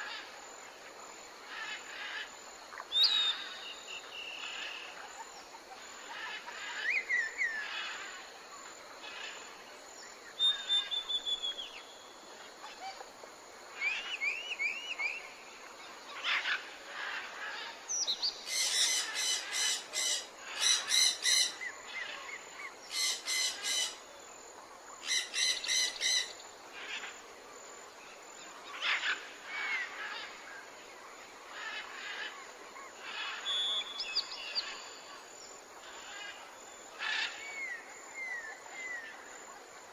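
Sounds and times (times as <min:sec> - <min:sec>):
birds singing and calling: 0:33.0 - 0:35.1.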